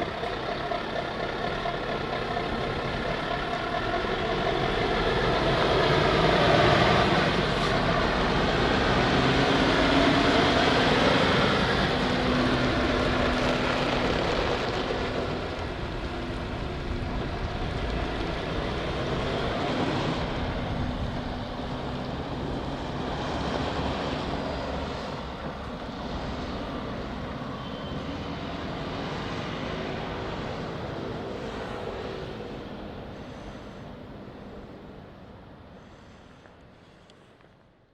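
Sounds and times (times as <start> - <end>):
truck driving away: 0.0 - 37.0.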